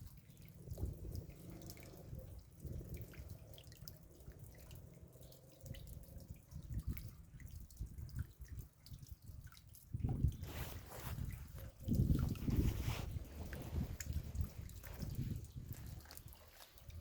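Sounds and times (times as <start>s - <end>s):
raindrops dripping: 0.0s - 17.0s.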